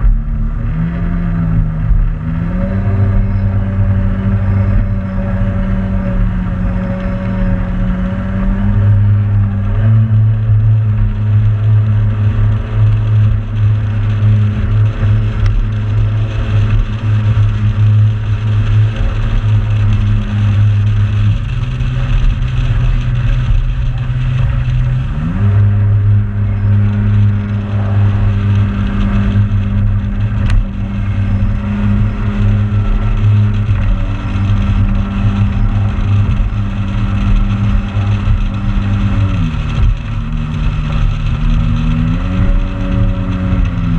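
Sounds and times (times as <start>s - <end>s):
motorboat engine running: 0.0s - 43.9s.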